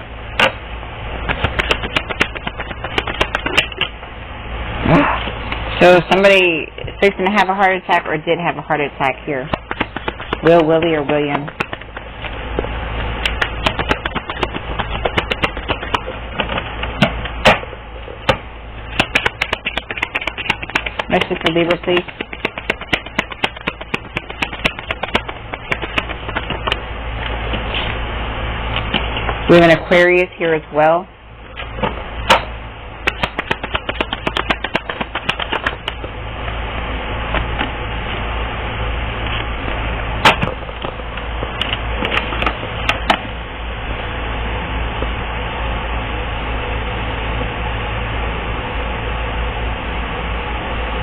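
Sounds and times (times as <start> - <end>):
steady low hum: 0.0 - 51.0
cards being shuffled: 1.3 - 3.9, 9.5 - 12.4, 13.2 - 16.6, 19.0 - 26.8, 33.1 - 36.1.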